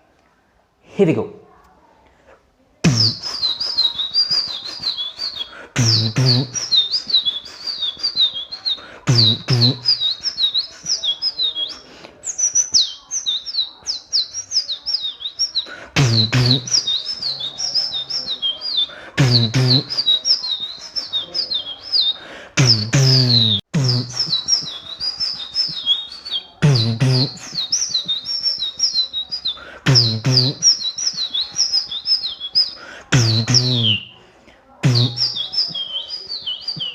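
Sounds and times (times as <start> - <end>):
beatbox bass hit: 2.8 - 3.5, 5.8 - 6.8, 9.0 - 10.0, 16.0 - 16.9, 19.2 - 20.1, 22.6 - 24.5, 26.6 - 27.6, 29.8 - 30.8, 33.1 - 34.1, 34.8 - 35.4
person mimicking bird chirps: 2.8 - 34.2, 34.8 - 36.9.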